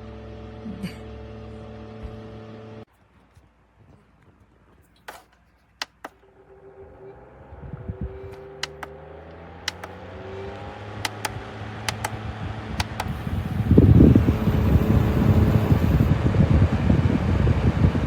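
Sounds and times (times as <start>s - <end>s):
sharp clicks: 5.8s - 6.2s, 8.6s - 10.0s, 11.0s - 12.2s, 12.8s - 16.1s
air cooler fan running: 10.9s - 18.0s
air buffeting microphone: 11.9s - 18.0s.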